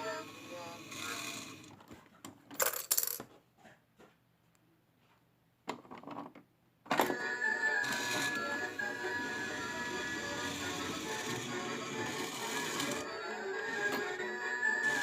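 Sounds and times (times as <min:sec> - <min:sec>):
music with held tones: 0:07.0 - 0:15.0.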